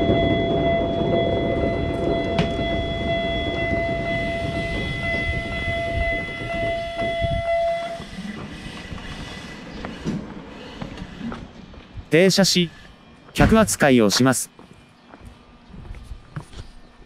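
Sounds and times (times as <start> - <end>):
high-pitched train squeal: 0.0 - 11.6, 12.2 - 14.0
train running gear rumbling: 0.0 - 17.0.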